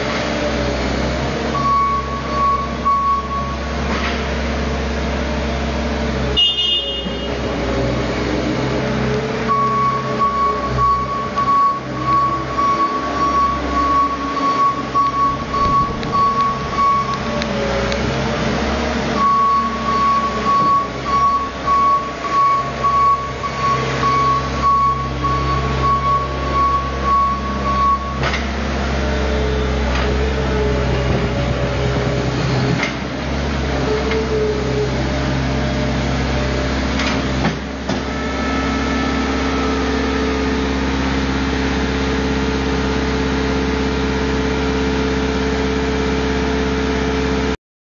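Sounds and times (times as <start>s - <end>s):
diesel engine running: 0.0s - 47.6s
backup alarm beeping: 1.6s - 3.7s, 9.5s - 17.3s, 19.2s - 28.2s.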